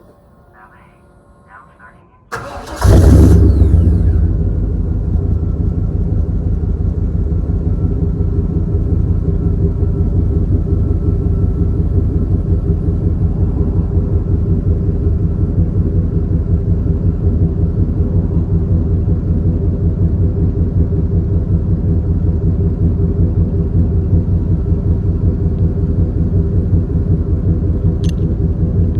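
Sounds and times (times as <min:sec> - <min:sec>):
van engine cranking: 0:02.3 - 0:16.7
van engine revving and idling: 0:02.3 - 0:28.9.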